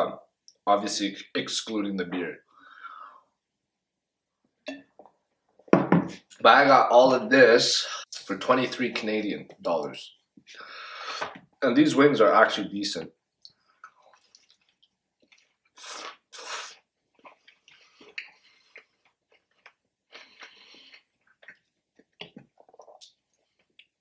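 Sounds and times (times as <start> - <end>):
person chewing chicken wing: 13.7 - 24.0.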